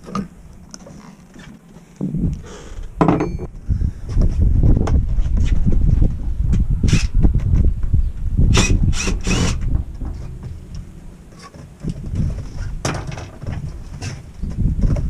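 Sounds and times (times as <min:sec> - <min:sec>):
steady low rumble: 0:02.0 - 0:11.3.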